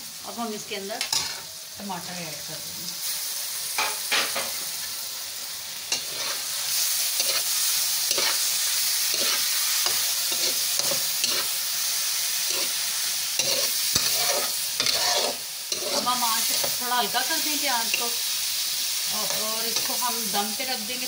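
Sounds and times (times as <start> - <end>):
vegetables sizzling in hot oil: 0.0 - 21.0
metal spatula scraping a pan: 1.0 - 1.5, 5.9 - 11.6, 12.4 - 12.8, 13.4 - 18.1.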